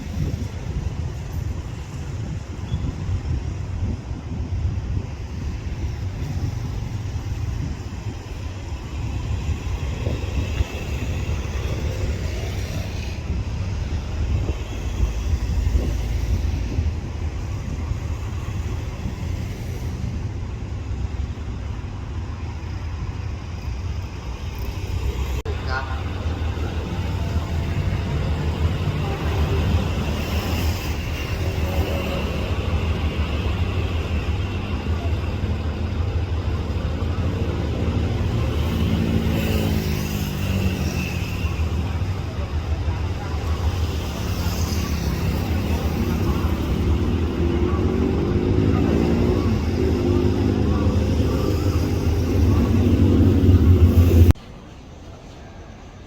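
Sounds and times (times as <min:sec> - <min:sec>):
wind buffeting microphone: 0:00.0 - 0:24.3
diesel train rumbling: 0:00.0 - 0:56.0.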